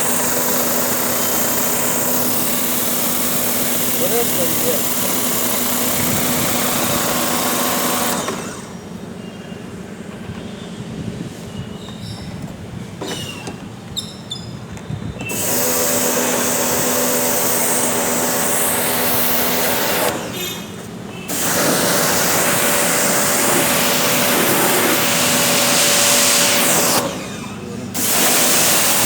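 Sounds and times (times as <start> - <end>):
pressure washer spraying water: 0.0 - 8.8, 15.3 - 29.0.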